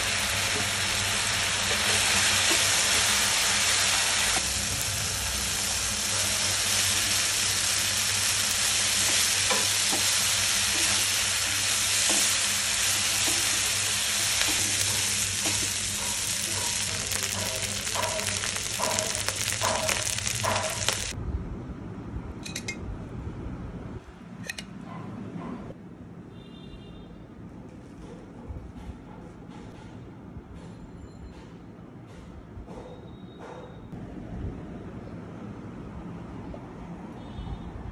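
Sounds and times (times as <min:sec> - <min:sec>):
rice sizzling in a hot pan: 0:00.0 - 0:21.2.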